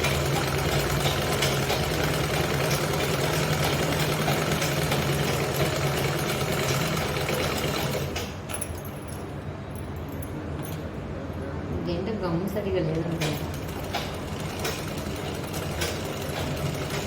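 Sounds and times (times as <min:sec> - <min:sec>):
sewing machine motor hum: 0:00.0 - 0:08.4, 0:13.0 - 0:17.0.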